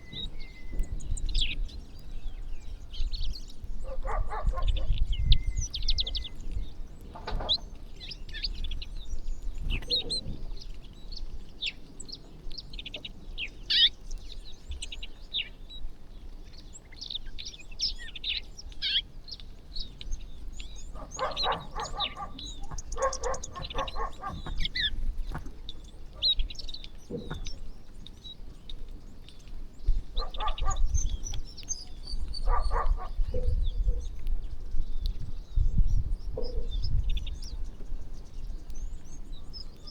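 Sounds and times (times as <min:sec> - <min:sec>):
small birds chirping: 0:00.0 - 0:39.9
harsh rapidly pulsed bird calls: 0:19.8 - 0:28.0, 0:30.2 - 0:33.9.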